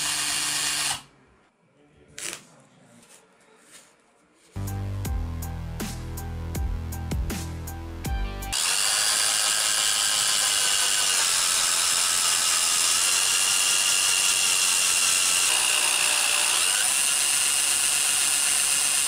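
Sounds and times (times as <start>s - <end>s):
power tool motor whining: 0.0s - 1.0s, 8.5s - 19.0s.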